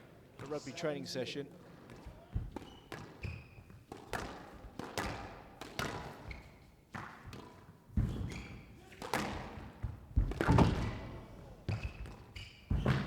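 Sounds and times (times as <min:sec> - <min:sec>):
court shoes squeaking: 0:01.6 - 0:04.5, 0:05.8 - 0:06.8, 0:08.0 - 0:08.9, 0:11.7 - 0:13.0
squash ball knocks: 0:03.8 - 0:06.2, 0:06.9 - 0:13.0.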